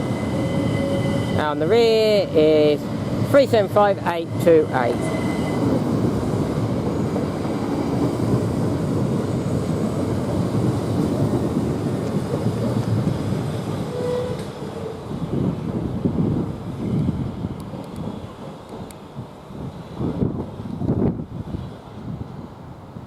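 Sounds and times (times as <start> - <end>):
electric train pulling away: 0.0 - 15.7.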